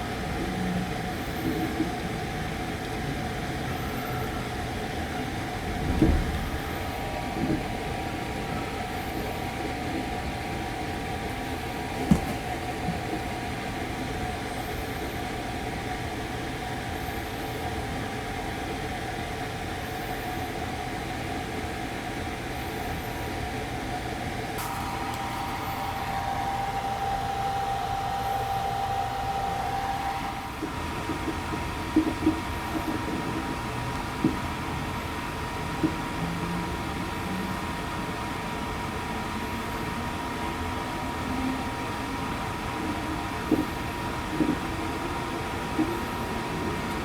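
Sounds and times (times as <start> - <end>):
train running rumble: 5.4 - 9.4
faint steady whine: 24.6 - 34.4.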